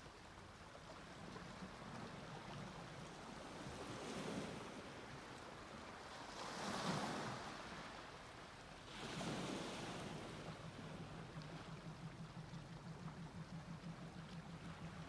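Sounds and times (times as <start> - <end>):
sea waves washing onto beach: 8.8 - 11.6.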